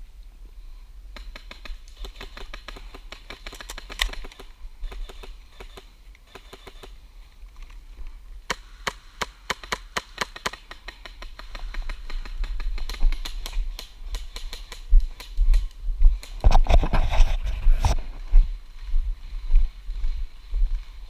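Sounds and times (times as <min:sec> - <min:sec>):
airsoft gunfire: 0:08.5 - 0:15.3.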